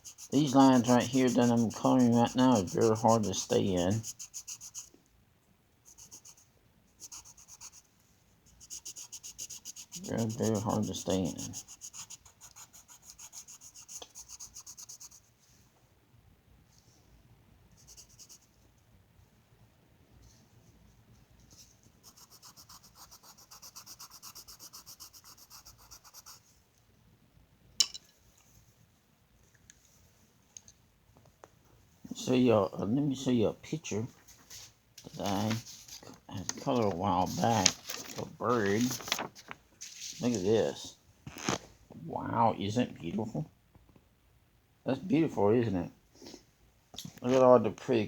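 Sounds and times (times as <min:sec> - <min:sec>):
scribbling on paper: 0:00.0 - 0:04.9, 0:05.9 - 0:07.9, 0:08.5 - 0:15.3, 0:17.8 - 0:18.5, 0:22.0 - 0:26.4.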